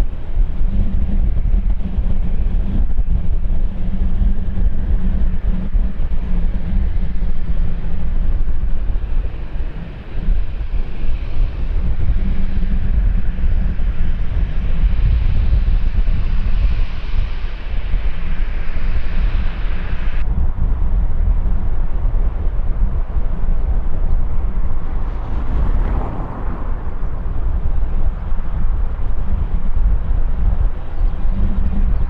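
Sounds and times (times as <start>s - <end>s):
wind buffeting microphone: 0.0s - 32.0s
faint high rushing sound: 24.4s - 28.4s.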